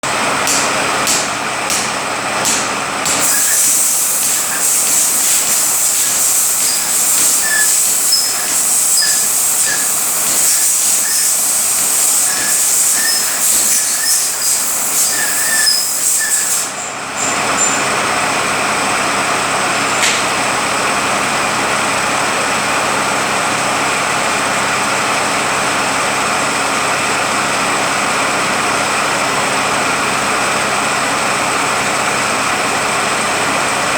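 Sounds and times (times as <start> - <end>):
transmission whine: 0.1 - 18.2
truck transmission hissing: 3.1 - 18.2.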